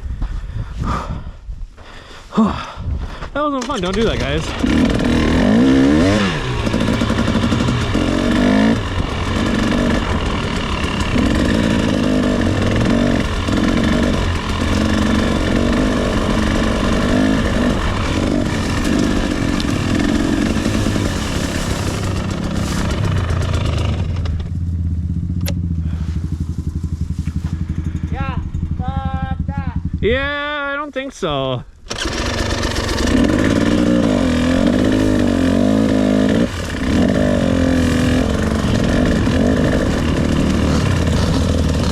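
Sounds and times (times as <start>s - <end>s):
dirt bike engine revving: 3.7s - 30.7s, 31.9s - 41.9s.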